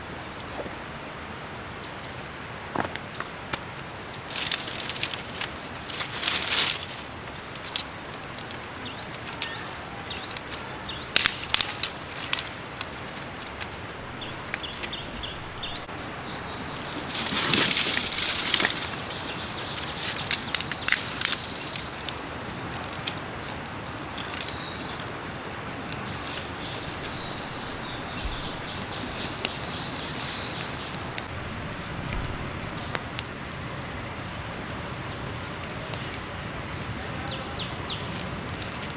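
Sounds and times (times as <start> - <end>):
close rustling: 4.2 - 15.9, 16.9 - 33.2
sharp clicks of handled things: 4.3 - 13.8.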